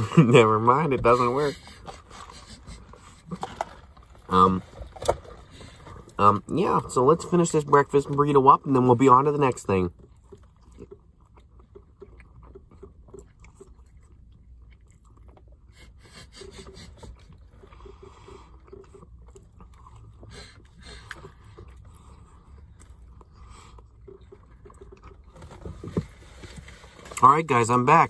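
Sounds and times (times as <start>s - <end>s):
person chewing with mouth clicks: 9.9s - 27.2s.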